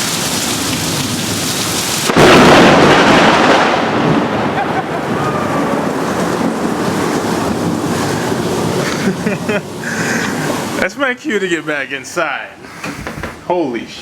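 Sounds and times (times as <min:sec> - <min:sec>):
thunderclap rumbling: 0:00.0 - 0:10.9
heavy rain pouring: 0:00.0 - 0:13.2.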